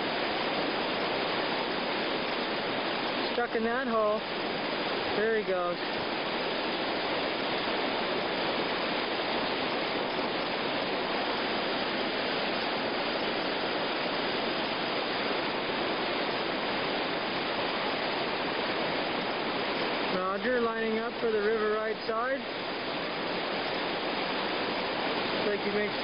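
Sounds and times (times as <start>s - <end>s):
whitewater rapids rushing: 0.0s - 26.0s.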